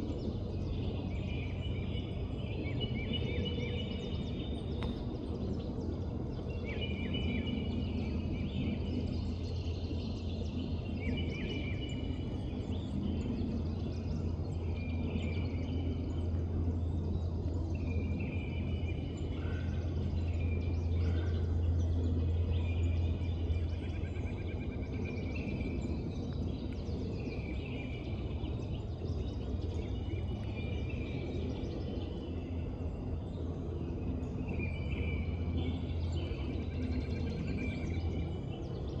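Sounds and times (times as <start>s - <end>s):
steady low rumble: 3.9s - 11.2s.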